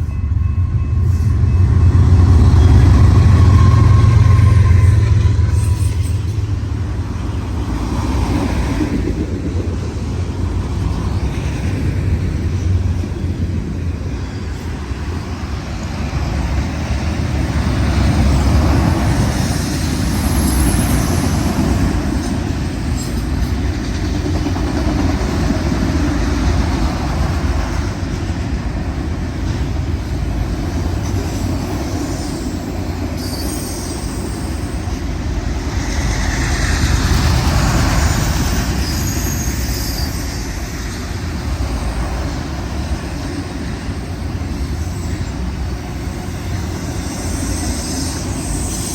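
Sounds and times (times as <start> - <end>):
train wheels rumbling on rail: 0.0 - 48.9
high wheel squeals: 2.4 - 6.6, 19.0 - 23.3, 30.8 - 35.1, 35.7 - 41.3, 46.6 - 48.9.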